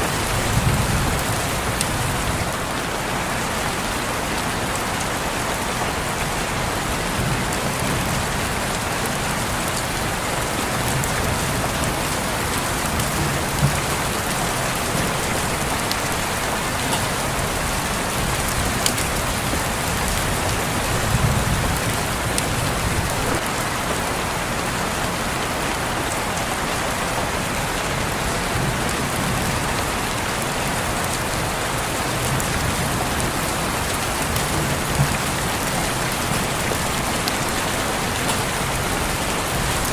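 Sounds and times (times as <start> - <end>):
rain on a window: 0.0 - 39.9.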